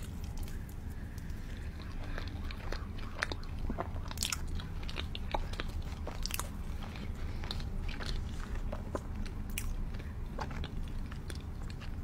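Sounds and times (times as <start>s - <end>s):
crunchy chewing of pizza: 0.0s - 12.0s.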